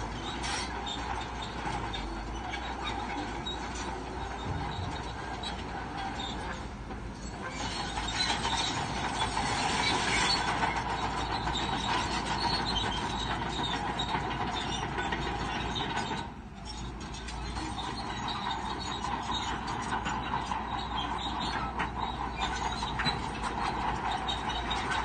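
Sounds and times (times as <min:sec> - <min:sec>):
bulldozer engine running: 0:00.0 - 0:25.0
steel tracks clanking and squealing: 0:00.0 - 0:25.0.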